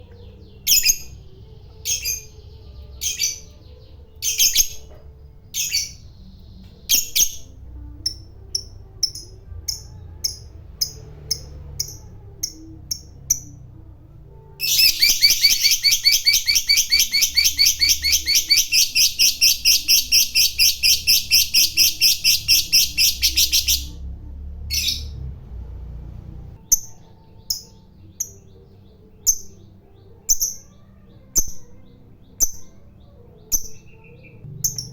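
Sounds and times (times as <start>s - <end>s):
lovebird chirping: 0.0s - 13.7s, 14.4s - 24.0s, 26.6s - 34.9s.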